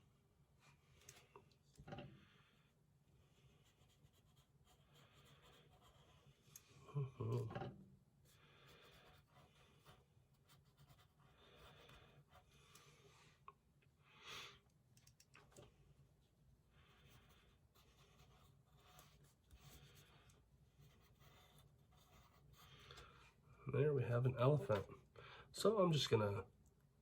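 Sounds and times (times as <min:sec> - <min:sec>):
pencil scratching on paper: 0:03.4 - 0:06.4, 0:08.2 - 0:12.6, 0:16.8 - 0:23.2.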